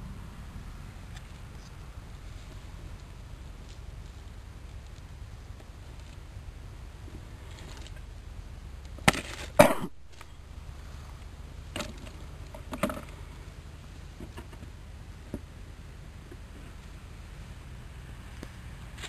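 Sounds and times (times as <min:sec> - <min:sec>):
wood scraping: 0:07.0 - 0:08.1, 0:09.0 - 0:13.5.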